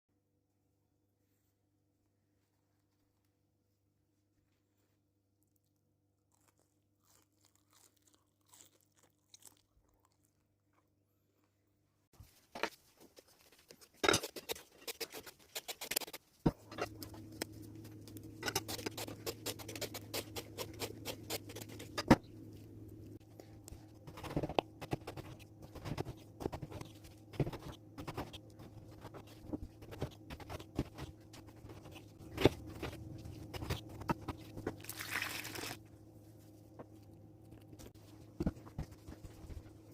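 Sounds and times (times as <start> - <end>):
low hum: 16.5 - 39.9.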